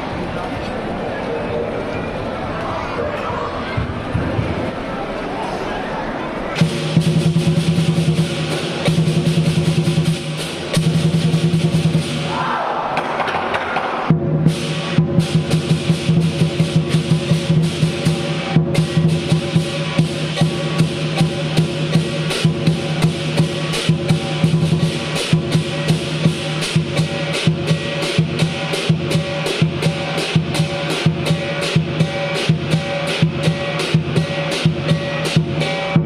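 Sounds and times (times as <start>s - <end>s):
drum cymbals and gong playing: 6.6s - 12.4s, 14.0s - 36.0s.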